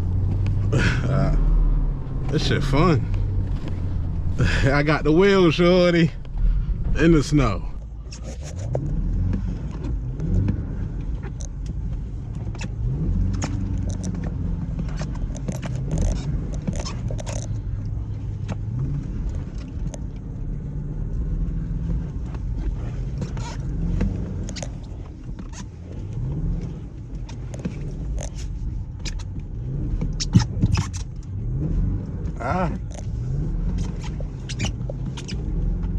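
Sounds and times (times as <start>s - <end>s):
engine revving: 0.0s - 28.4s.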